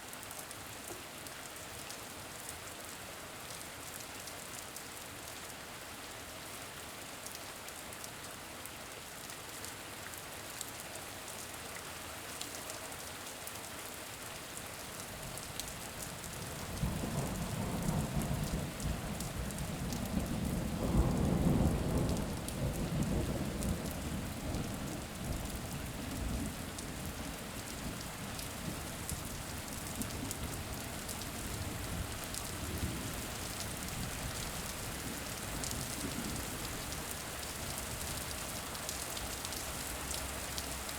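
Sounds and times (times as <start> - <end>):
steady rain: 0.0 - 40.9
low rumble of thunder: 16.2 - 38.3.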